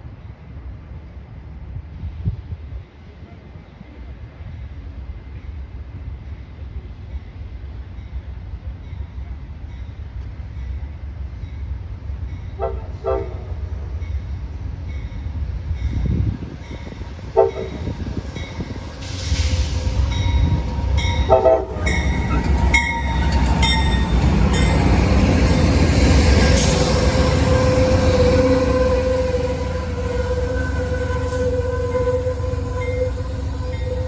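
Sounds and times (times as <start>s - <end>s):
train passing: 0.0s - 34.0s
train horn blasts: 12.5s - 14.2s, 16.0s - 25.1s, 25.9s - 34.0s.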